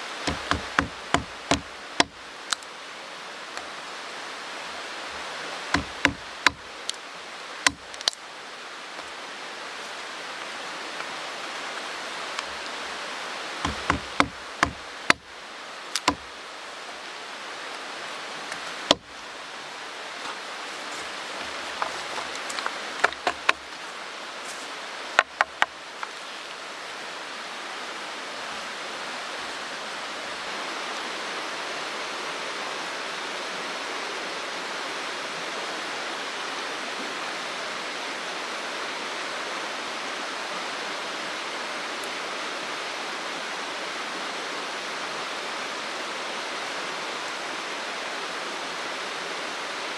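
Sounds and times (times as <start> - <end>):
mountain stream rushing: 0.0 - 49.9
sharp clicks and knocks: 0.3 - 2.2, 5.8 - 6.6, 7.7 - 8.2, 13.7 - 15.2, 16.0 - 16.2, 25.2 - 25.7.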